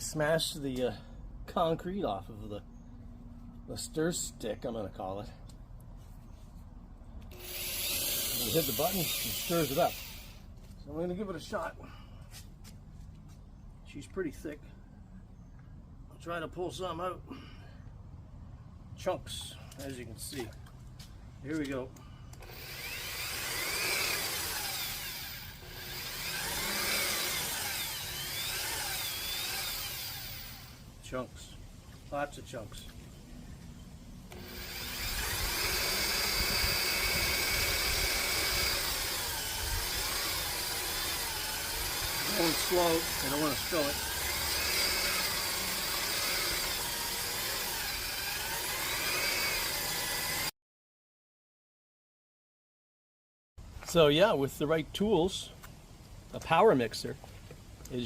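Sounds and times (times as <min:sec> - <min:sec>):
electric mixer motor whine: 0:22.4 - 0:30.7, 0:34.3 - 0:50.5.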